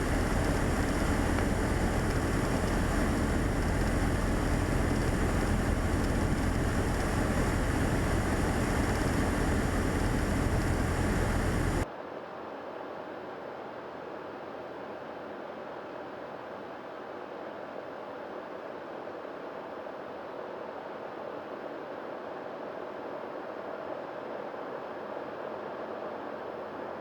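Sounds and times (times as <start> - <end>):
airplane engine running: 0.0 - 11.8
steady airflow noise: 0.0 - 11.9.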